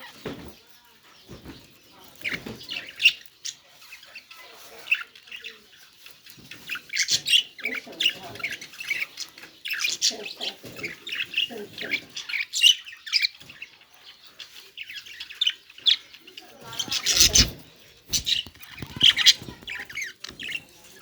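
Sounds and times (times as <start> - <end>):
budgerigar chirping and squawking: 15.0 - 20.6.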